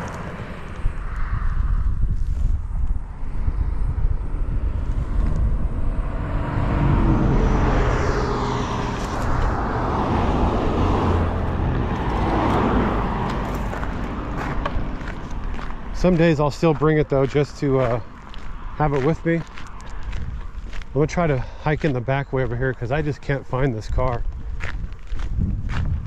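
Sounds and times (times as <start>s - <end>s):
tyre and wind rushing: 0.0s - 16.8s, 24.2s - 26.0s
vehicle low rumble: 0.0s - 26.0s.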